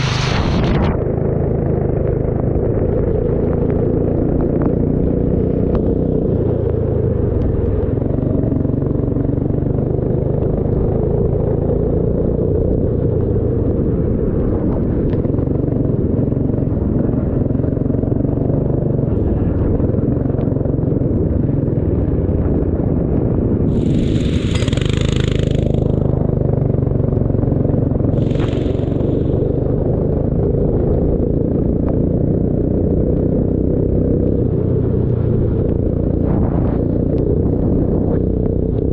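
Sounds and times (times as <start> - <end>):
short rushing hisses: 0.0 - 0.9, 23.7 - 26.1, 28.2 - 29.6
racing engine rumbling: 0.0 - 38.9.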